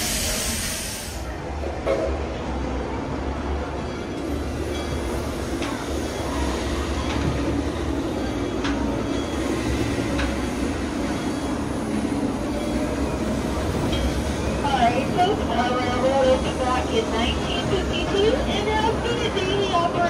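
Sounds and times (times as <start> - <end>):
train wheels rumbling on track: 0.0 - 20.0
click at rail joint: 8.6 - 8.8, 10.0 - 10.5.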